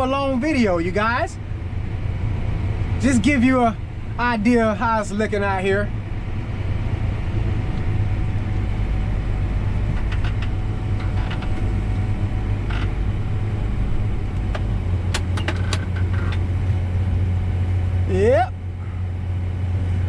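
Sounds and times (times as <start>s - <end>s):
combine harvester engine drone: 0.0s - 20.0s
light clicks and rattles: 9.9s - 11.7s, 14.3s - 16.5s.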